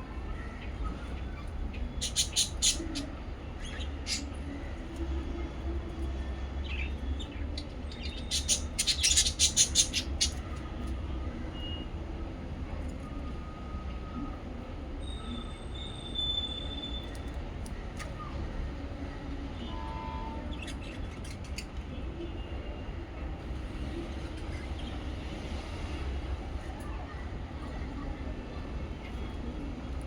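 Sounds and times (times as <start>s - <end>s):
parrots chirping: 1.8s - 4.4s, 6.7s - 10.6s.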